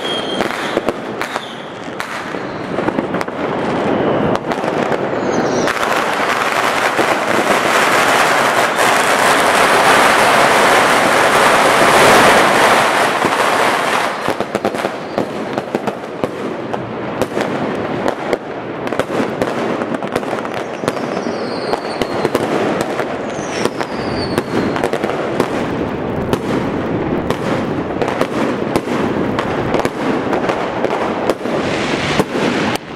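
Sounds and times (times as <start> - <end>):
falling firework whistles: 0.0 - 15.4, 20.4 - 25.0, 31.4 - 32.8
firecrackers crackling and banging: 0.0 - 32.9
fireworks barrage: 0.0 - 32.9.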